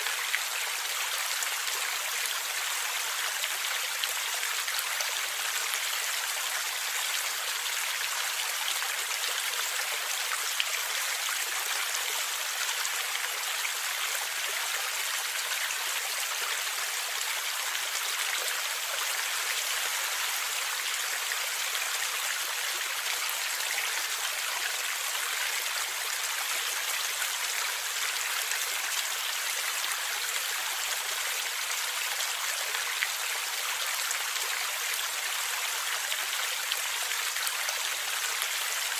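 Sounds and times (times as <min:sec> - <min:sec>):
stream flowing over rocks: 0:00.0 - 0:38.9.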